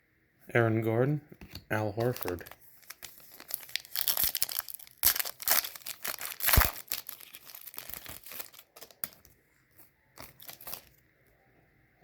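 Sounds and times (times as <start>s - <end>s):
foil wrapper crinkling: 2.0s - 9.3s, 10.2s - 11.0s.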